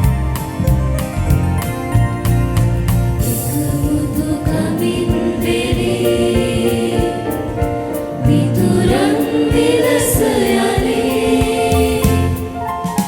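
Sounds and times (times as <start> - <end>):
instrumental backing with beat: 0.0 - 13.0
choir singing a hymn: 3.2 - 13.0.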